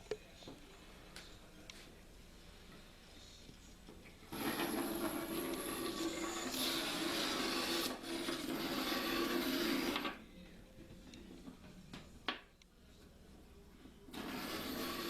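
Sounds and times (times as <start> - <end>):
magnets buzzing through wire coil: 14.2 - 15.0.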